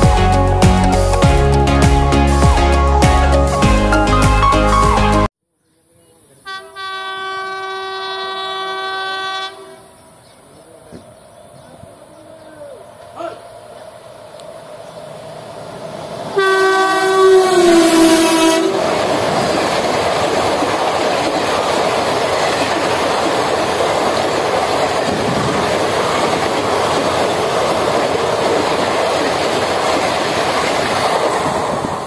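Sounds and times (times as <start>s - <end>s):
train horn: 6.4s - 10.0s, 16.3s - 18.9s
train coaches rushing and clattering: 10.4s - 32.0s.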